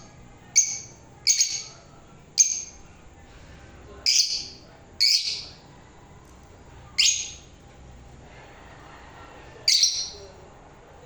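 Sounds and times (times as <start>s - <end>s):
harsh high-pitched bird calls: 0.0s - 1.8s, 2.4s - 2.8s, 4.1s - 5.6s, 7.0s - 7.5s, 9.6s - 10.3s.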